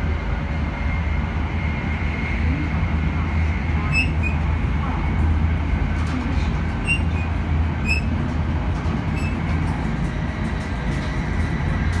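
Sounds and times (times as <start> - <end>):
train interior rumble: 0.0 - 12.0
high squeaks: 4.0 - 4.4, 6.8 - 8.2, 9.2 - 9.4.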